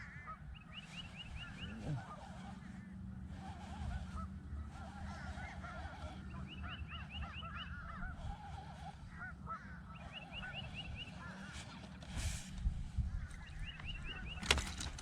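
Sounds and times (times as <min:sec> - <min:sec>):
geese honking: 0:00.0 - 0:12.0
steady low hum: 0:00.0 - 0:15.0.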